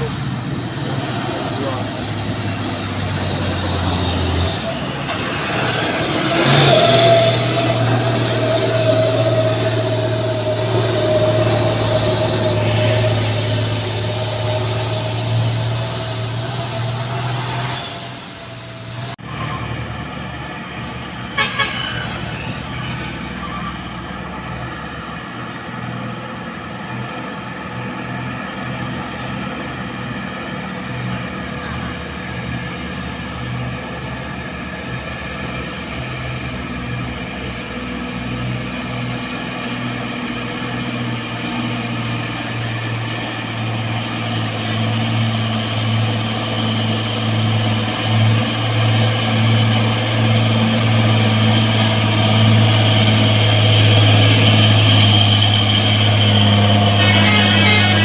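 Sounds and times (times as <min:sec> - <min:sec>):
truck diesel engine running: 0:00.0 - 0:58.0
short horn toot: 0:21.4 - 0:22.1, 0:56.9 - 0:58.0.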